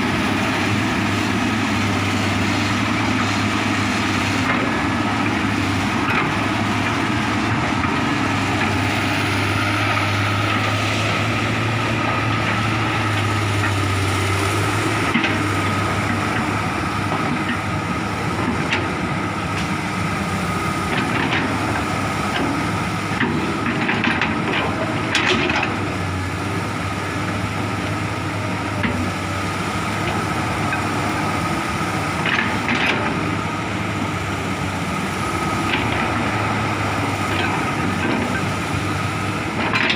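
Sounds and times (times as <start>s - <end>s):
excavator diesel engine: 0.0s - 39.9s.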